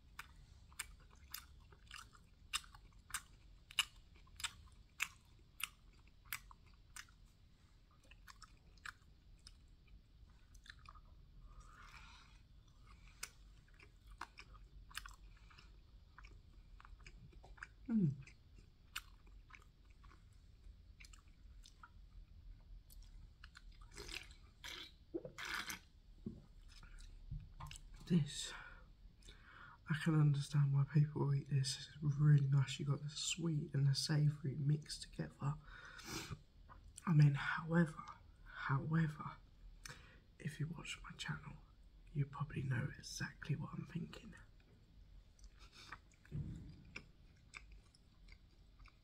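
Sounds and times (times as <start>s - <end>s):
chewing with wet mouth clicks: 0.0s - 25.9s, 45.3s - 49.0s.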